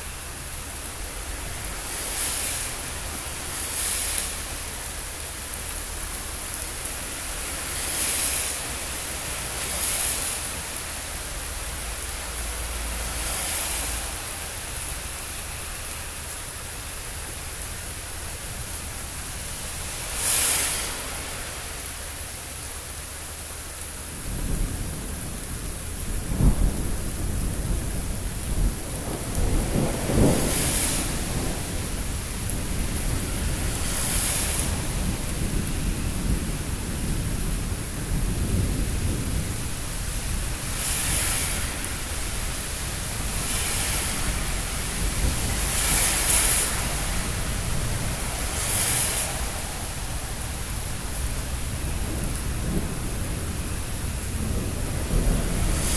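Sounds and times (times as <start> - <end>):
steady rain hissing: 0.0 - 55.9
rolling thunder: 24.2 - 55.9.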